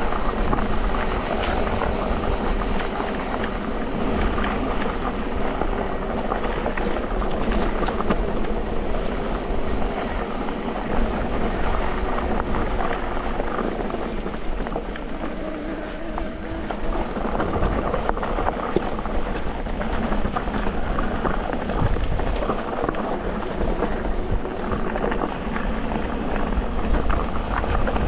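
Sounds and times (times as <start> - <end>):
bike rattling and clicking: 0.0 - 28.0
bike tyres rumbling on dirt: 0.0 - 28.0.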